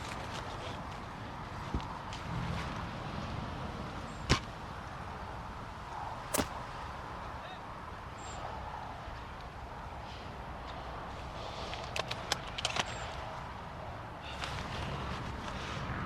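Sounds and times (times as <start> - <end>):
outdoor background noise: 0.0 - 16.0
airsoft gunshot cracks: 6.3 - 6.6.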